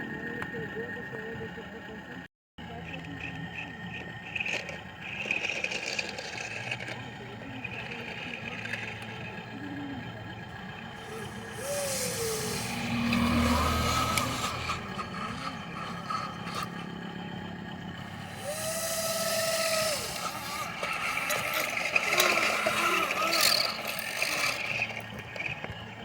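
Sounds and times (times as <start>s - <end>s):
model truck running: 0.0s - 26.0s
short pitch glides: 11.0s - 17.0s.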